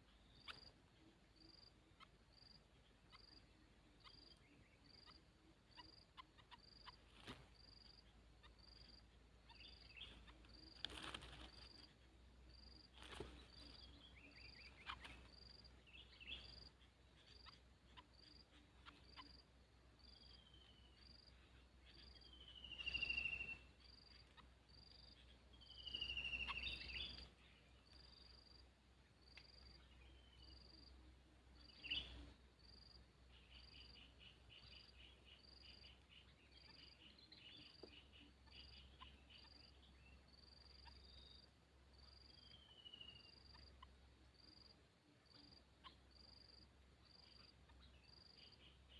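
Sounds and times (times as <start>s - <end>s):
insect chirping: 0.0s - 48.9s
faint clicks and rustles: 10.7s - 11.9s
whistled bird calls: 21.8s - 24.2s, 25.1s - 27.3s, 31.6s - 32.3s, 42.2s - 43.9s.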